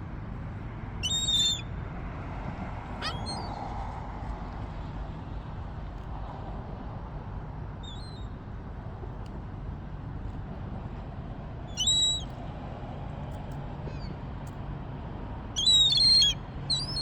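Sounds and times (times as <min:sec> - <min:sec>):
gulls calling: 0:01.0 - 0:01.6, 0:02.9 - 0:03.6, 0:15.6 - 0:17.0.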